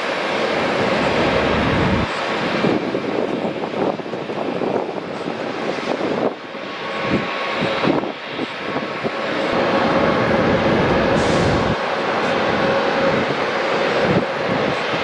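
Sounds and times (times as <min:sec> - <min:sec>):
airliner engines roaring: 0:00.0 - 0:15.0
faint steady whine: 0:00.3 - 0:02.7.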